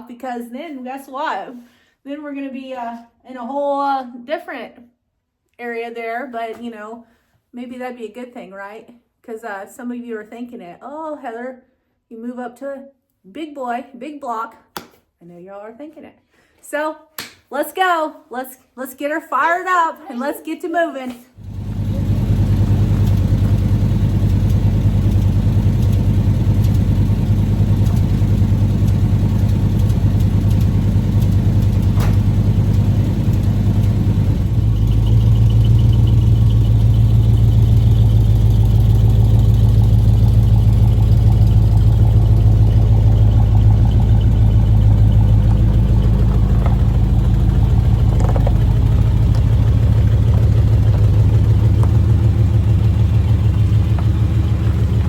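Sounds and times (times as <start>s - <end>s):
car engine idling: 21.4s - 55.0s.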